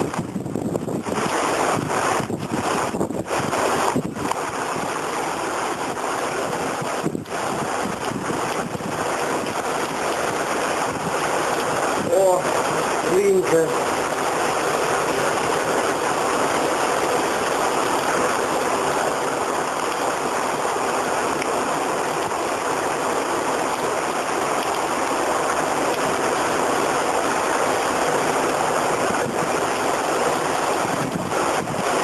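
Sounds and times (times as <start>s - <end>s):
wind knocks on microphone: 0.0s - 5.0s, 6.4s - 13.4s, 30.8s - 32.0s
heavy rain: 0.0s - 32.0s
strong wind gusts: 0.0s - 32.0s.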